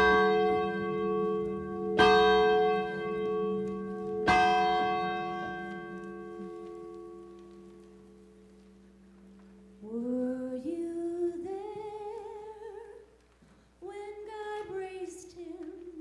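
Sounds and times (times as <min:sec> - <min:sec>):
church bell tolling: 0:00.0 - 0:09.8.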